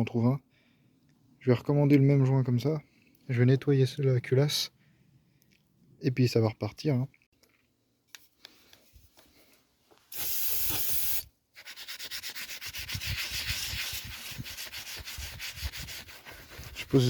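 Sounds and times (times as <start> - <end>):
steady hiss: 10.1 - 11.3
rapid scrubbing strokes: 11.6 - 17.0.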